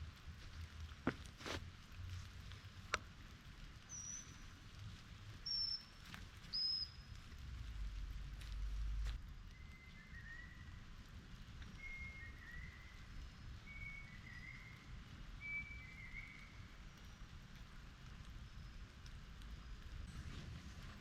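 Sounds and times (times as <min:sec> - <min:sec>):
rain falling: 0:00.0 - 0:21.0
bird two-note whistled call: 0:15.4 - 0:16.5.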